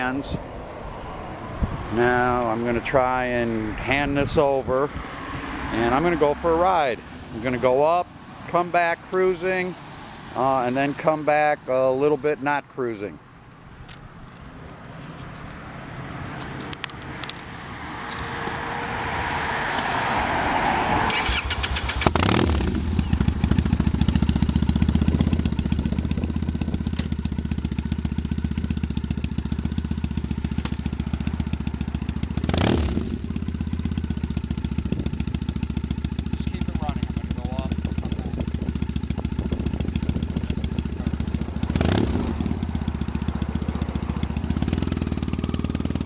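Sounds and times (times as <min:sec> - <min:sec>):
motorcycle engine idling: 0:21.2 - 0:46.0.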